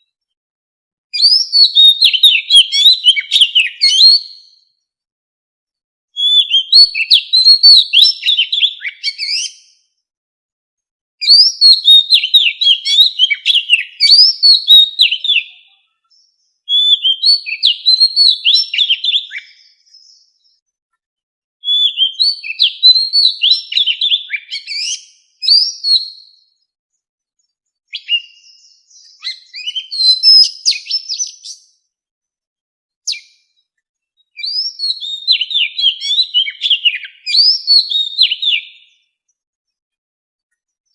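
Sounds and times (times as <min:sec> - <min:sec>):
bird singing whistled phrases: 0:01.2 - 0:04.6, 0:06.2 - 0:09.8, 0:11.2 - 0:20.5, 0:21.6 - 0:26.6, 0:27.9 - 0:31.8, 0:33.0 - 0:33.5, 0:34.3 - 0:38.9.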